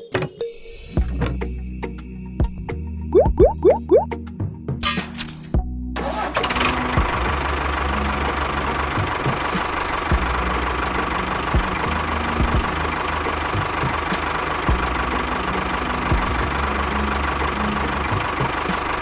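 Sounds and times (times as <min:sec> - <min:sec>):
small engine running with knocking: 0:06.4 - 0:19.0.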